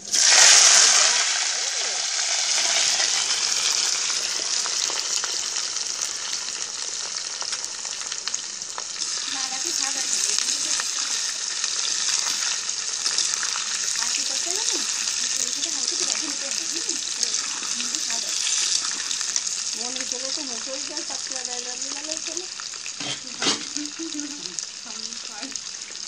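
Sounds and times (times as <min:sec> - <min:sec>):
potatoes sizzling in hot oil: 0:00.0 - 0:26.0
metal spatula scraping pan: 0:23.0 - 0:23.8.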